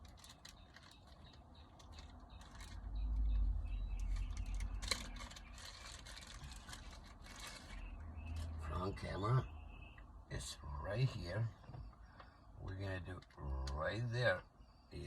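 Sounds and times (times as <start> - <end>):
small hard objects clicking: 0.0 - 3.0.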